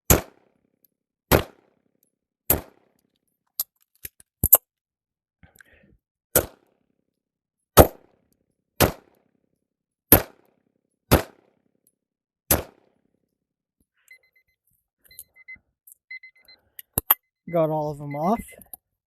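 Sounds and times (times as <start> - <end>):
pistol shots: 0.1 - 0.6, 1.3 - 1.8, 2.5 - 2.9, 6.4 - 6.6, 7.8 - 8.0, 8.8 - 9.2, 10.1 - 10.5, 11.1 - 11.6, 12.5 - 12.9
faint high-pitched beeping: 14.1 - 18.8.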